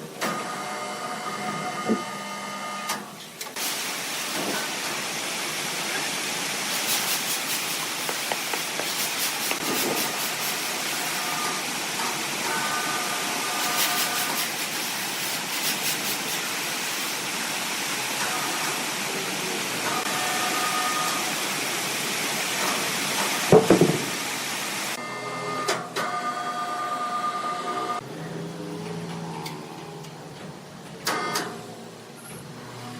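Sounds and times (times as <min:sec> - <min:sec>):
sawmill saw cutting timber: 0:06.8 - 0:17.2
loud knock: 0:23.5 - 0:24.1.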